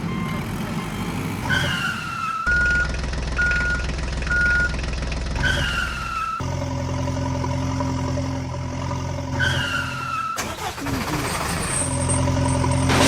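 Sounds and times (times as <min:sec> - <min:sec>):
engine humming steadily: 0:00.0 - 0:13.0
heavy engine running: 0:00.0 - 0:13.0
reversing beeps: 0:00.1 - 0:04.8.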